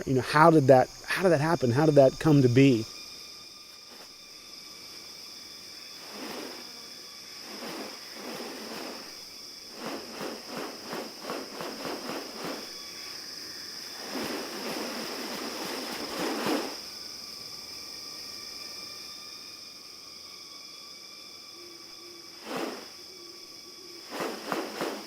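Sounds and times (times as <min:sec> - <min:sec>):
high-pitched insect drone: 0:00.0 - 0:25.0
rustling burst: 0:06.0 - 0:06.7, 0:07.4 - 0:12.8, 0:13.9 - 0:16.8, 0:22.4 - 0:23.0, 0:24.0 - 0:25.0
quick rasping pulses: 0:07.4 - 0:13.2, 0:22.4 - 0:23.0, 0:24.0 - 0:25.0.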